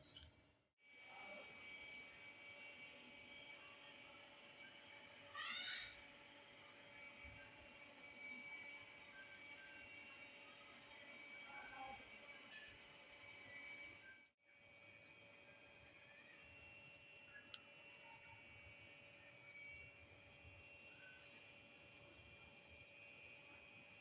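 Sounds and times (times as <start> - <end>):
faint background hum: 0.0 - 24.0
bird chirping: 14.8 - 15.2, 15.8 - 18.8, 19.4 - 21.3, 22.6 - 23.4.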